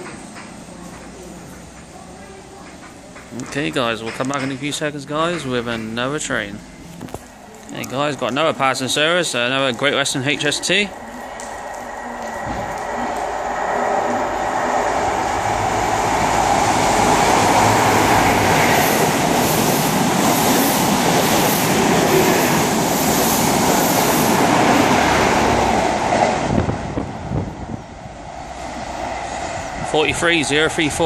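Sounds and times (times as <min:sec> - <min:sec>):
wheels clattering over rail joints: 0:00.0 - 0:13.3
diesel train roaring past: 0:00.0 - 0:31.0.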